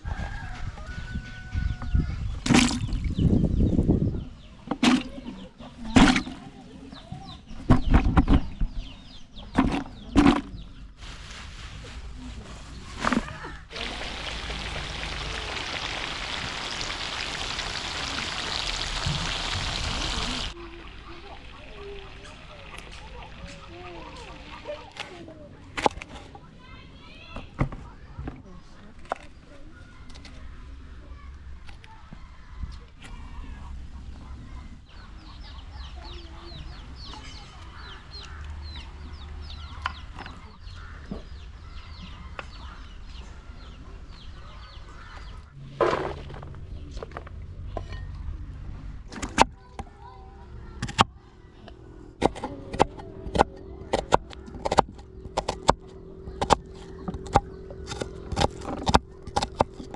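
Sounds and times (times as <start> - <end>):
chickens clucking: 12.6 - 25.0.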